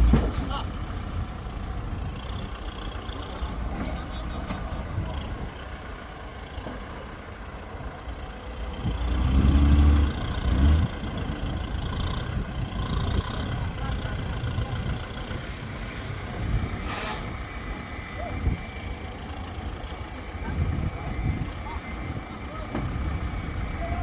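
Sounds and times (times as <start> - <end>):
heavy vehicle engines running: 0.0 - 24.0.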